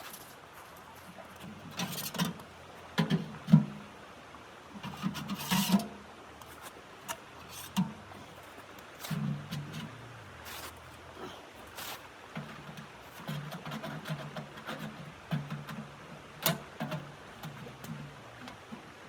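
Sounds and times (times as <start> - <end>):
knocks and clunks of handling: 1.3 - 3.8, 12.3 - 18.9.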